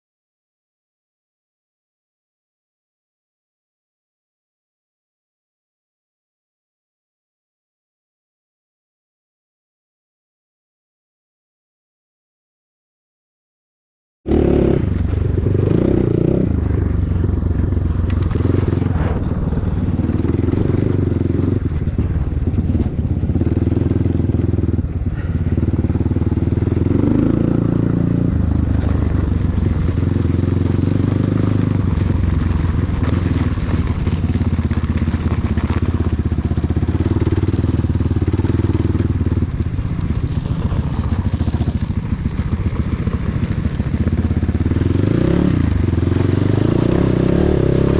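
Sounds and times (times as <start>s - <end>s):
motorcycle engine droning: 14.3s - 47.9s.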